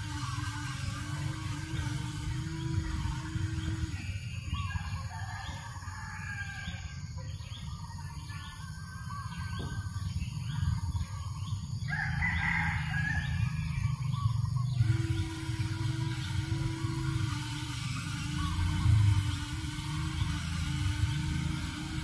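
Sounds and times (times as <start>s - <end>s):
birds chirping: 0.0s - 22.0s
rooster crowing: 4.7s - 7.2s, 11.8s - 13.9s
low steady rumble: 6.7s - 22.0s.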